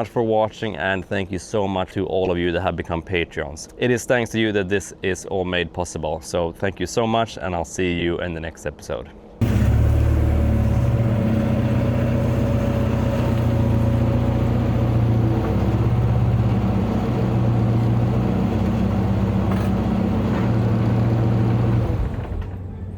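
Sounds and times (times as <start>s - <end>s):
engine running with low drone: 9.4s - 22.9s.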